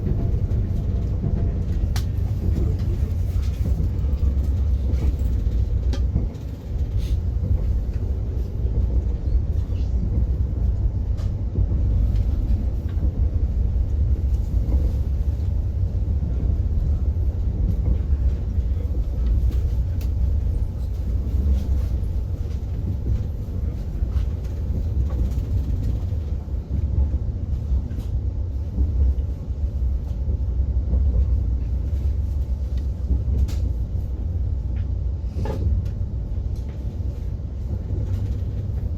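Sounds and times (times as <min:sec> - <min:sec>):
train rumbling on track: 0:00.0 - 0:38.9.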